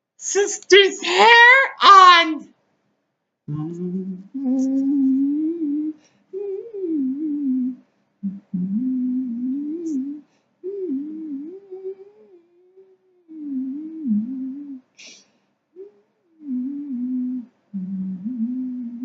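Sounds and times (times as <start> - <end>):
steady low tone: 3.5 - 14.8, 16.4 - 19.0
person humming a tune: 3.5 - 15.2, 15.8 - 19.0.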